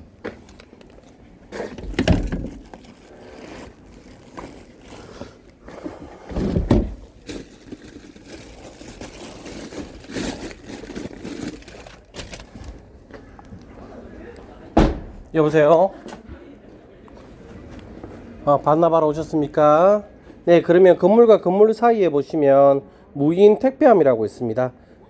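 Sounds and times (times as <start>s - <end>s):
loud thuds: 6.3s - 7.1s, 14.8s - 15.4s.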